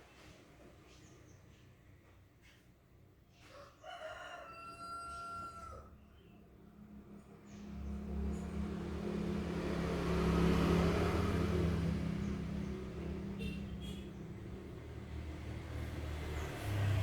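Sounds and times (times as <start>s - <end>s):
motor vehicle passing by: 6.6s - 17.0s.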